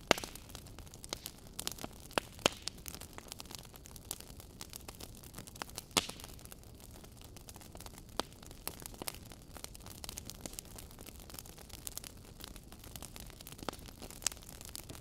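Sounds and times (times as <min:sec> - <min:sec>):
fireplace wood fire crackling: 0:00.0 - 0:15.0.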